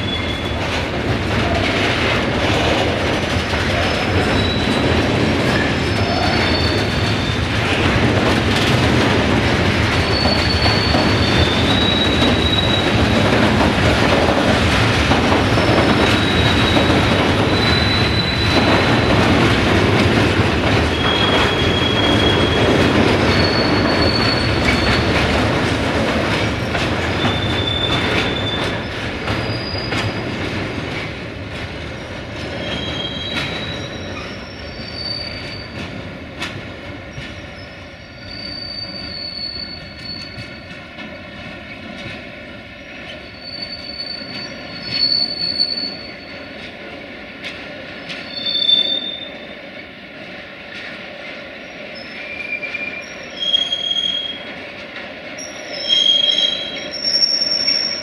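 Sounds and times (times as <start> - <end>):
wagons rumbling and clattering: 0.1 - 31.6
high-pitched wheel squeals: 5.8 - 7.5, 10.0 - 13.1, 15.6 - 19.1, 20.9 - 25.2, 37.6 - 40.6, 43.2 - 46.3, 52.0 - 54.4, 55.4 - 58.0.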